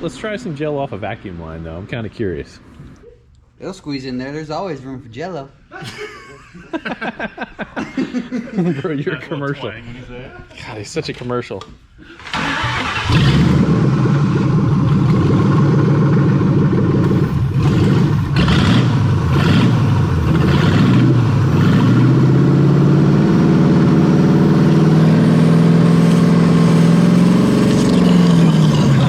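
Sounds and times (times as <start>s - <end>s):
car engine running unevenly: 12.6s - 29.0s.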